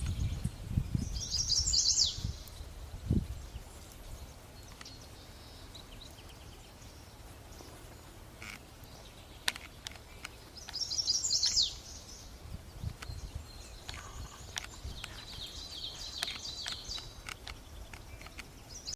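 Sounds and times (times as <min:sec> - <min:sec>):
wild birds calling: 0:03.4 - 0:18.9
sharp clicks: 0:04.6 - 0:05.0, 0:09.4 - 0:11.6, 0:12.8 - 0:18.9.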